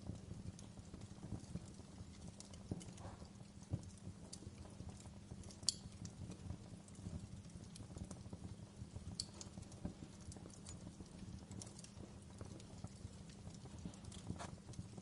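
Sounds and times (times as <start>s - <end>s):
low steady rumble: 0.0s - 15.0s
wood fire crackling and popping: 0.0s - 15.0s.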